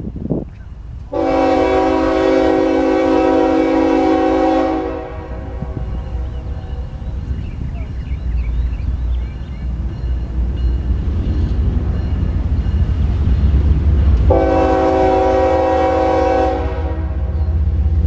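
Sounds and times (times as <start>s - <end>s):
train rumble: 0.0s - 18.0s
locomotive air horn blast: 1.1s - 7.0s, 14.3s - 17.4s.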